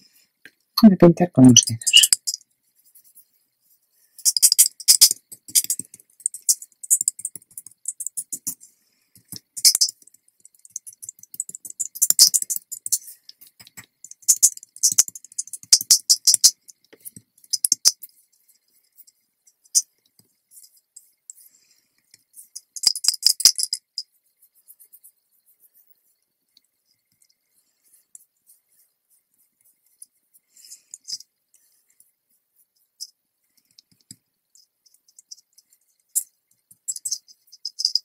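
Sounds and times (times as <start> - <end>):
chipboard pieces clicking and rattling: 4.2 - 8.6, 9.2 - 18.1, 22.5 - 24.1, 36.2 - 38.0.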